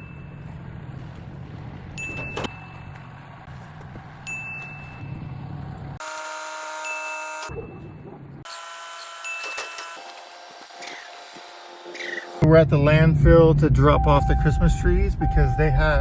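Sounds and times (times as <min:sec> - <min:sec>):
steady ringing tones: 0:00.0 - 0:00.9
vehicle low rumble: 0:00.0 - 0:06.0, 0:07.5 - 0:08.5, 0:12.4 - 0:16.0.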